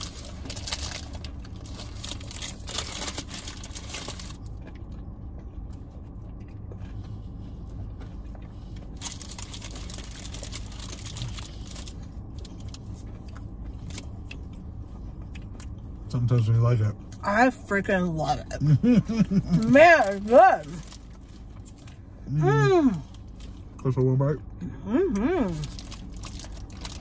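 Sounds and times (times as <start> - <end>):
crinkly rustling: 0.0 - 4.9, 8.6 - 14.1, 19.3 - 22.0, 25.6 - 27.0
people chewing crunchy sandwich: 0.0 - 17.2, 18.5 - 24.0, 24.9 - 27.0
steady low hum: 0.0 - 27.0.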